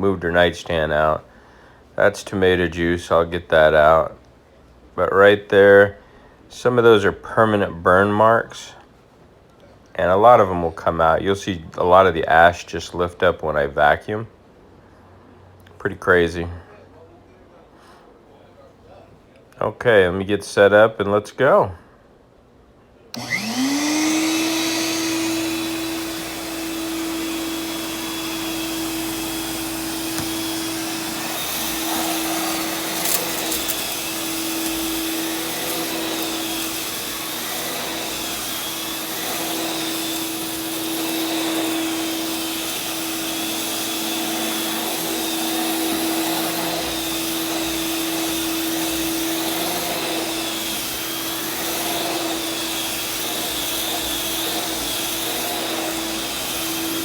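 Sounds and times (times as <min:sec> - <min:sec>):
shop vacuum running: 0:23.1 - 0:57.0.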